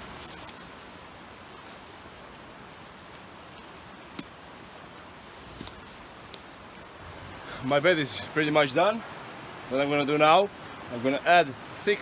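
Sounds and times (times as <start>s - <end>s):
creek rushing: 0.0s - 12.0s.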